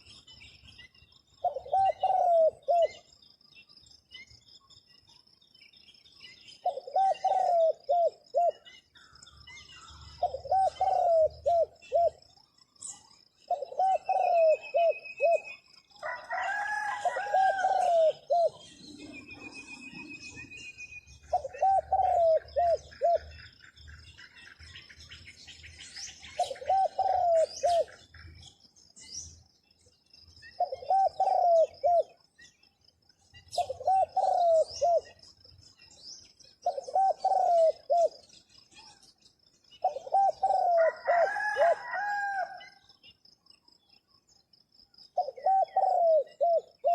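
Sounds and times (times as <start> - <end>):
small birds chirping: 0.0 - 46.9
dove cooing: 1.4 - 3.1, 6.6 - 8.7, 9.8 - 20.4, 21.3 - 23.4, 26.3 - 28.2, 30.6 - 32.2, 33.5 - 35.3, 36.6 - 38.3, 39.8 - 42.8, 45.2 - 46.9.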